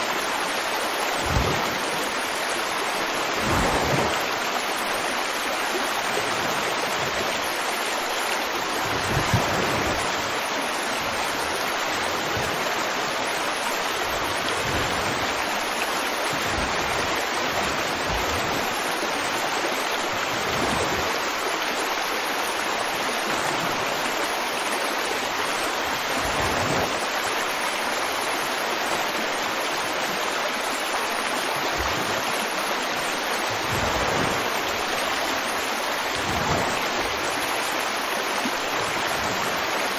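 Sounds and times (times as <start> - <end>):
river water rushing: 0.0 - 39.9
low thuds in water: 1.2 - 1.8, 3.3 - 4.2.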